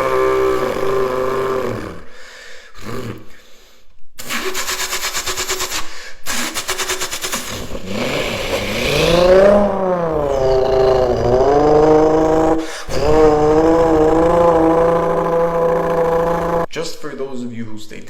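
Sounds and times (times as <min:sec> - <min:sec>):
car engine revving: 0:07.3 - 0:16.7.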